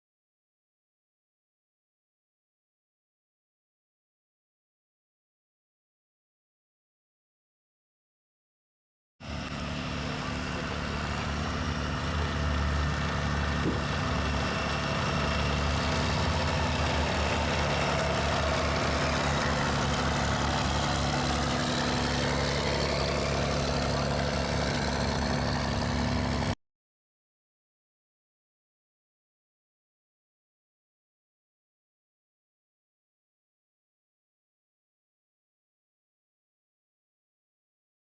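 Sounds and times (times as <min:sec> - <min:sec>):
car engine idling: 0:09.2 - 0:26.6.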